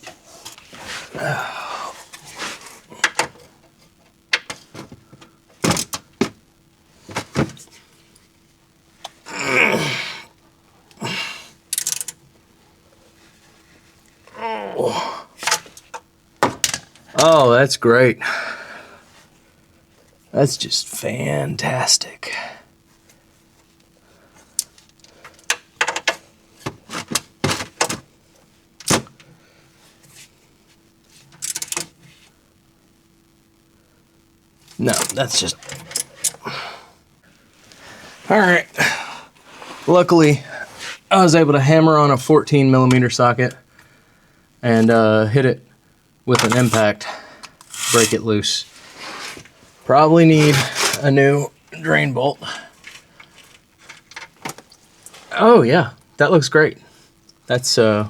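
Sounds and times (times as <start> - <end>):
faint steady hum: 0.0 - 58.0
metal scraping: 47.6 - 48.3.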